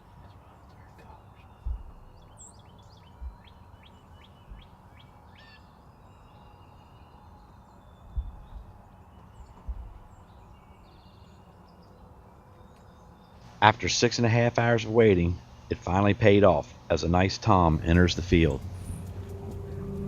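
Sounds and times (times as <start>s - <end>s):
outdoor background hiss: 0.0s - 20.0s
songbirds chirping: 0.0s - 20.0s
soft low thumps: 1.6s - 2.4s, 3.1s - 3.6s, 4.4s - 4.8s, 8.1s - 10.2s.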